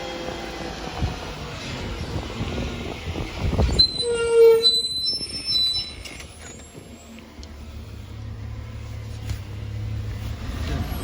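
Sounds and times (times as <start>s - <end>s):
garbage truck brakes squealing: 3.6s - 7.2s
low engine hum: 5.3s - 11.0s.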